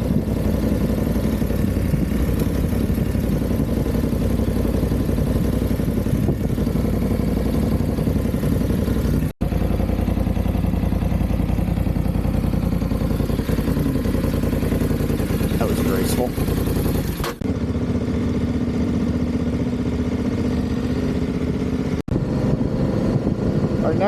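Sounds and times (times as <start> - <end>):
wind rushing over microphone: 0.0 - 7.0, 22.1 - 24.0
motorcycle engine running: 0.0 - 24.0.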